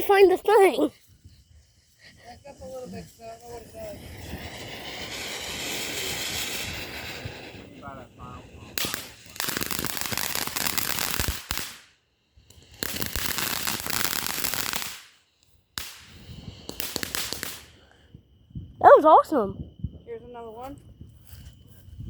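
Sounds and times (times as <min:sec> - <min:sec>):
firework hiss: 0:00.0 - 0:19.4
sharp firework crack: 0:03.4 - 0:17.9.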